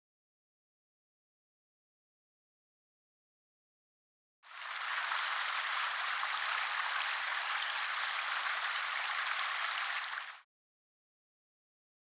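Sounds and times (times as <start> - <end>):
steady patter of noise: 4.5 - 10.4.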